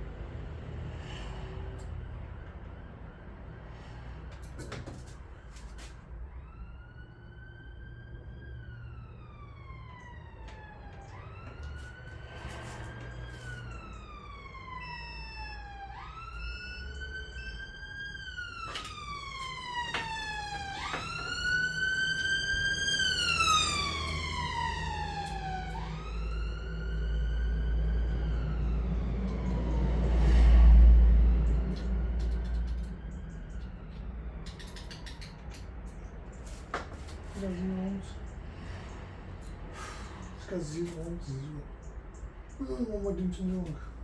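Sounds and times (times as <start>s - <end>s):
low vehicle rumble: 0.0s - 44.0s
emergency siren wailing: 0.6s - 4.5s, 5.1s - 34.6s.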